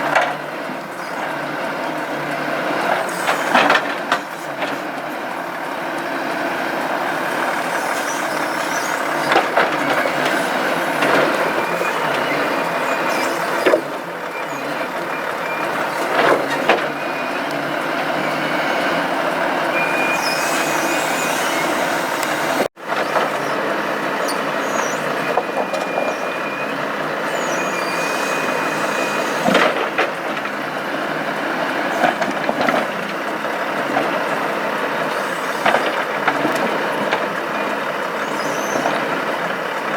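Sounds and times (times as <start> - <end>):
truck engine running: 0.0 - 39.9
crane hydraulic noise: 2.8 - 4.6, 6.5 - 30.0.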